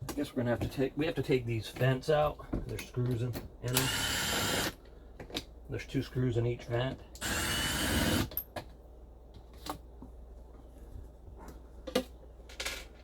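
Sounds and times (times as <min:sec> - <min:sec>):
cordless drill running: 0:03.7 - 0:04.8, 0:07.2 - 0:08.3.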